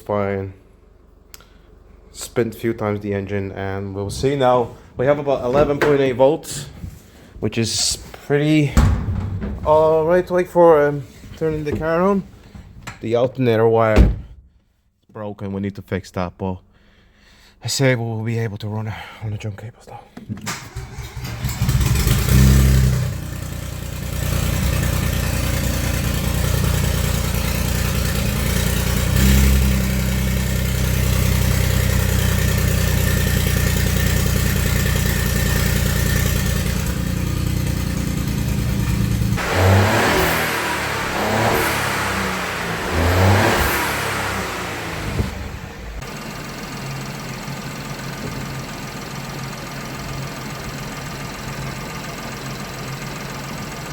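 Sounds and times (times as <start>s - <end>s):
petrol engine running and revving: 20.8s - 46.8s.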